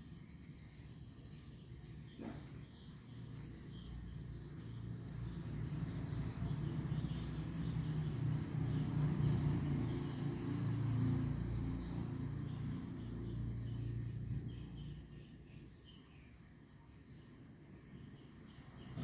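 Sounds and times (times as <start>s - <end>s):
low motor rumble: 1.1s - 15.5s.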